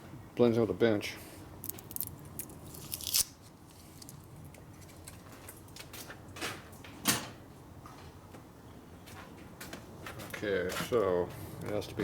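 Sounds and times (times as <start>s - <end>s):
small metal parts clicking: 1.6s - 3.3s.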